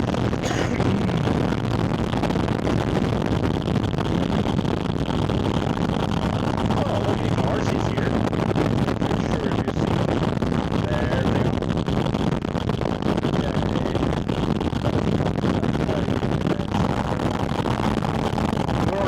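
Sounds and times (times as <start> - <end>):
loud engine intake noise: 0.0 - 2.7.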